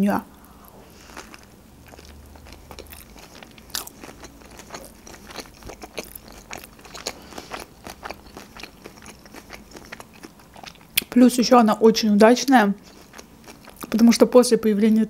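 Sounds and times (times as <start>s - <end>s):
person chewing spring roll: 0.4s - 11.0s, 12.8s - 14.0s.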